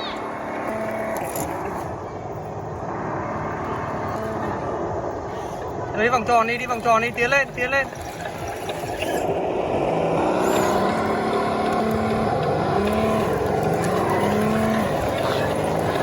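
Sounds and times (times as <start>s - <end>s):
toy truck electric motor whining: 10.2s - 15.9s.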